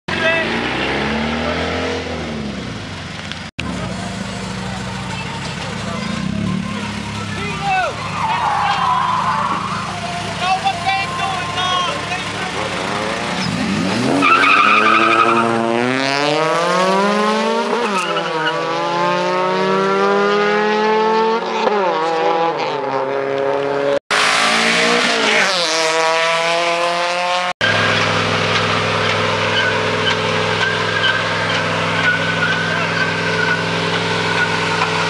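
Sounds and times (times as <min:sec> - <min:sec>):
engines revving hard: 0:00.1 - 0:35.0
vehicle engine idling: 0:02.8 - 0:13.7
tyre squeal: 0:07.6 - 0:15.6, 0:17.8 - 0:18.7, 0:27.6 - 0:35.0.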